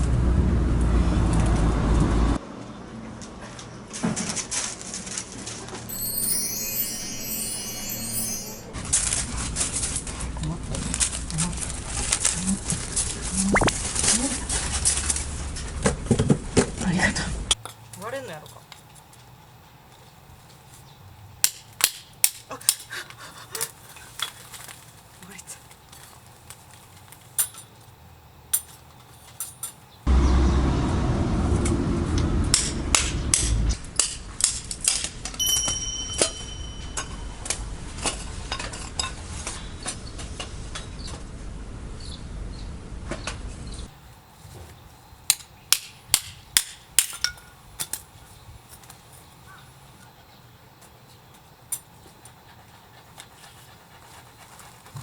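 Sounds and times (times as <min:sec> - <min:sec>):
low rumble: 0:30.1 - 0:33.8.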